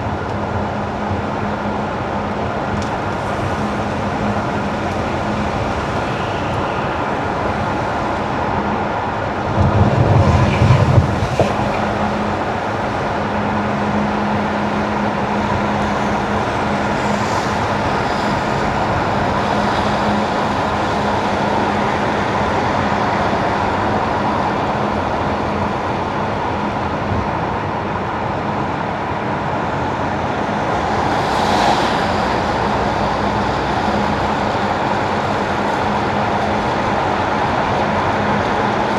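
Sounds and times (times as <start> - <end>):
low rumble: 9.2 - 13.9
tyre hiss on wet road: 10.9 - 22.6, 30.6 - 34.4.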